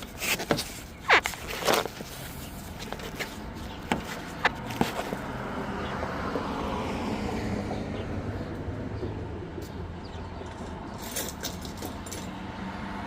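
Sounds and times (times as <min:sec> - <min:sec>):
vehicle passing by: 0:03.4 - 0:10.9, 0:12.0 - 0:13.0.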